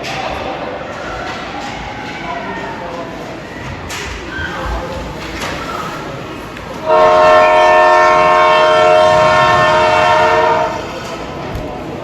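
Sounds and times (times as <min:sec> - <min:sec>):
arena horn blast: 0:06.8 - 0:11.1.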